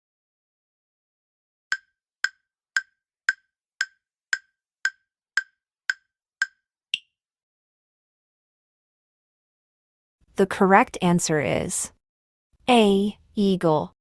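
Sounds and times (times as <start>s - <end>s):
countdown timer ticking: 1.7s - 7.1s.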